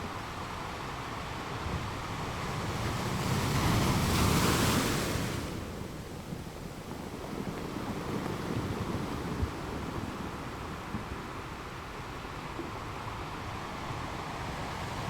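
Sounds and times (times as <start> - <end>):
ocean waves breaking: 1.6 - 12.4.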